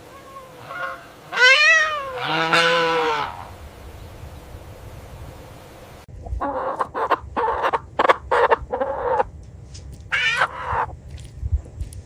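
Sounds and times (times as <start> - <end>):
chickens clucking: 0.0 - 3.5, 6.2 - 9.3, 10.1 - 11.0.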